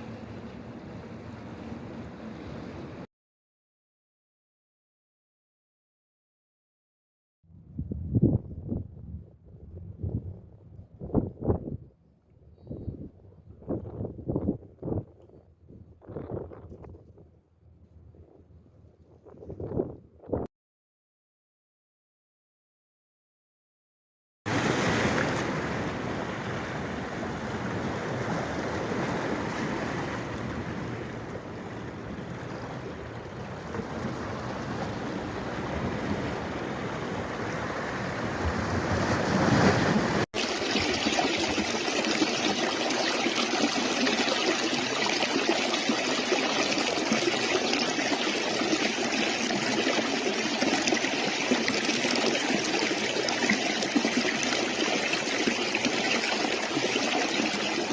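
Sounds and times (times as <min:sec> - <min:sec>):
water rushing: 0:24.5 - 0:57.9.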